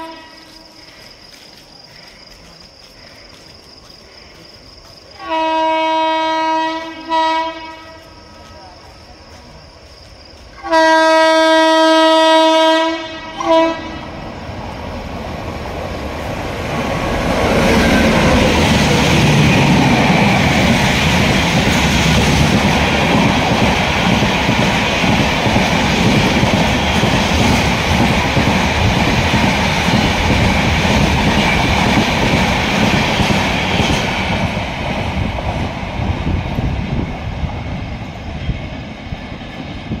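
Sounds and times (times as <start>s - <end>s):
train horn blast: 0.0s - 0.7s, 5.2s - 8.4s, 10.6s - 14.2s
train wheels clattering on track: 14.9s - 40.0s.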